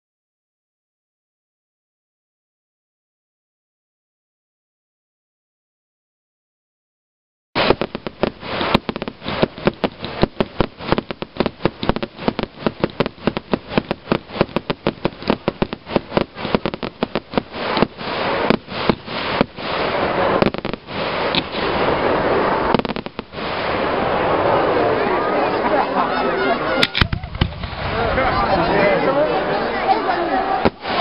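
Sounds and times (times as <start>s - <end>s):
fireworks banging and crackling: 7.6s - 31.0s.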